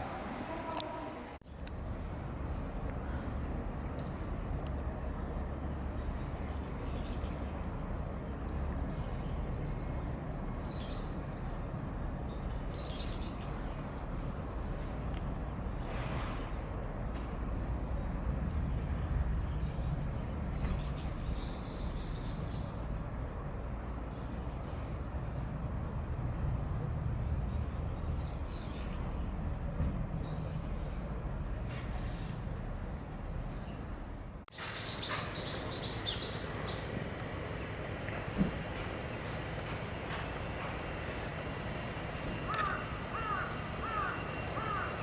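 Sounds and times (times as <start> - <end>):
low outdoor rumble: 0.0 - 45.0.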